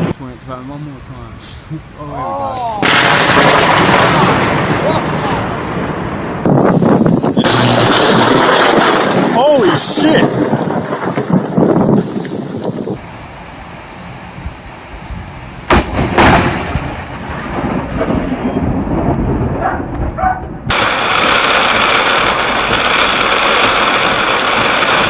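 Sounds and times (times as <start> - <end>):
steady loud hiss: 0.0 - 3.9, 11.0 - 16.5
thunder cracks and rumble: 2.8 - 13.0, 15.2 - 25.0.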